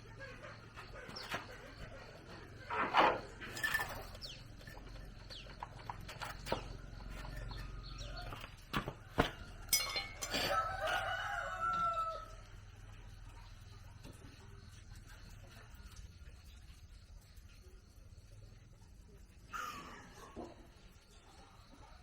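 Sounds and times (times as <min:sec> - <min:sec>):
rooster crowing: 0:07.5 - 0:12.7.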